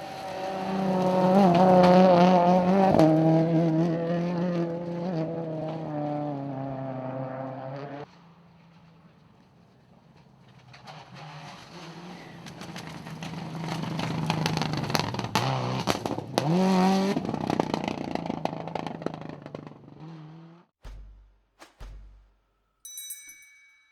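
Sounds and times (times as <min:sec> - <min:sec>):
rally car engine passing: 0:00.0 - 0:20.7
sharp cracks: 0:20.8 - 0:22.6.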